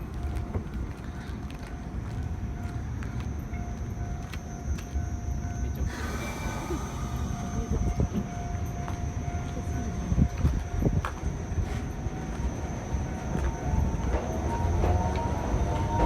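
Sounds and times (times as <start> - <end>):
train rumbling: 0.0 - 16.0
thin steady tone: 3.0 - 13.7.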